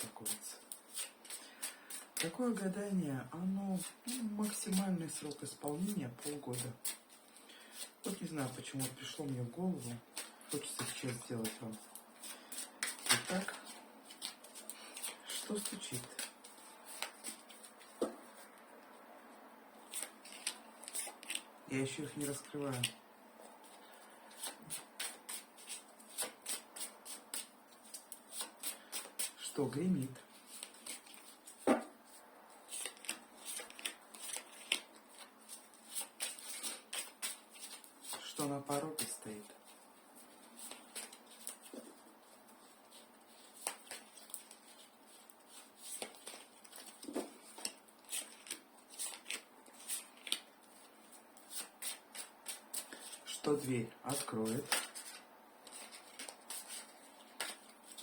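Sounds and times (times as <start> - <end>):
cards being shuffled: 0.0 - 2.7, 3.4 - 19.0, 19.8 - 58.0.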